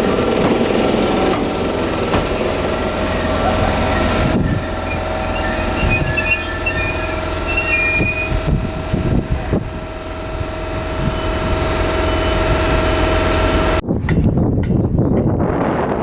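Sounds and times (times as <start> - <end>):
electric train whine: 0.0 - 13.8
wind buffeting microphone: 0.0 - 16.0
faint wheel squeal: 3.1 - 8.7.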